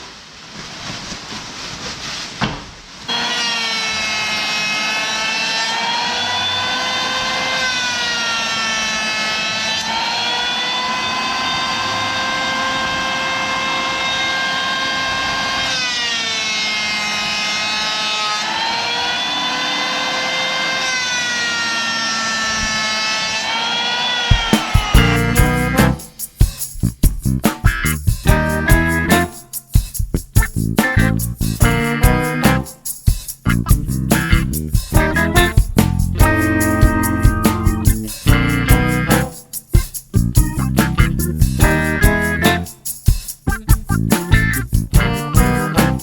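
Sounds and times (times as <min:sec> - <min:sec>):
power tool motor whine: 0:03.1 - 0:25.1.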